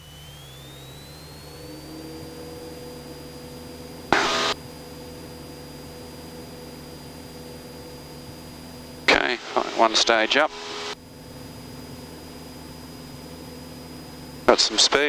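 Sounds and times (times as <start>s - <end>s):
loud burst of noise: 0.0s - 8.1s, 9.0s - 11.0s
light aircraft engine and propeller: 0.0s - 15.0s.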